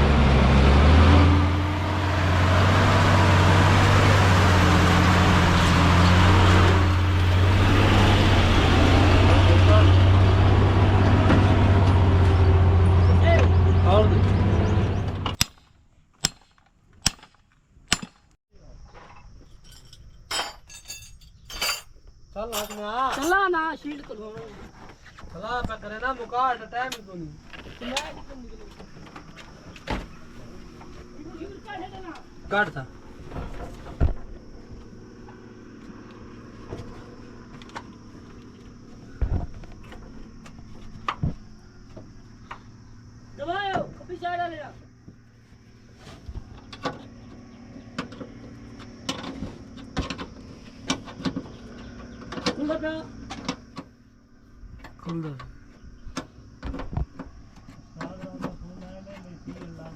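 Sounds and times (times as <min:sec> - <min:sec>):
sharp metal knocks and clanks: 0:15.2 - 0:18.4.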